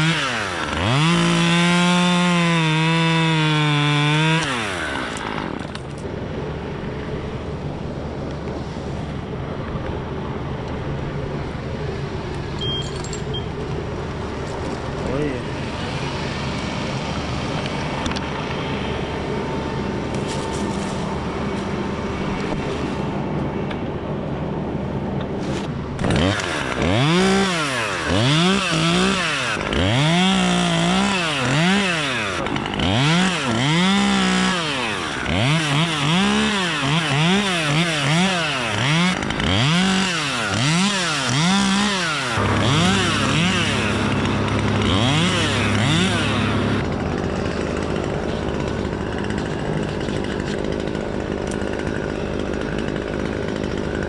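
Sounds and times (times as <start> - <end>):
chainsaw running and revving: 0.0 - 6.0, 13.9 - 23.0, 25.9 - 54.0.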